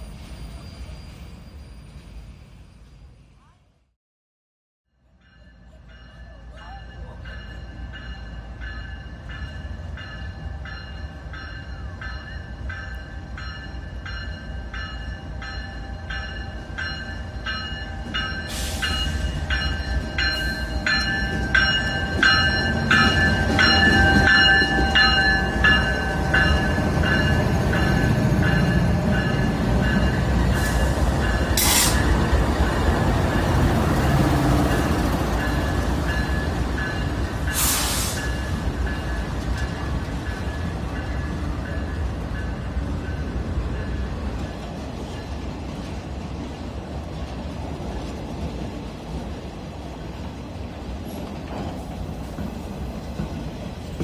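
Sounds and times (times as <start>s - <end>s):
diesel locomotive engine rumble: 5.0s - 54.0s
bell ringing: 5.2s - 32.2s.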